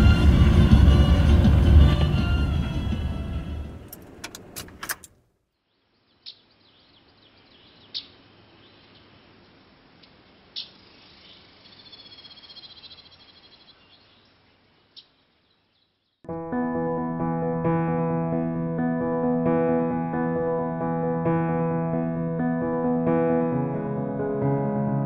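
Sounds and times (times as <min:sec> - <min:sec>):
loud low rumble: 0:00.0 - 0:03.8
music: 0:00.0 - 0:03.9, 0:16.3 - 0:25.0
bird chirps: 0:05.6 - 0:16.3.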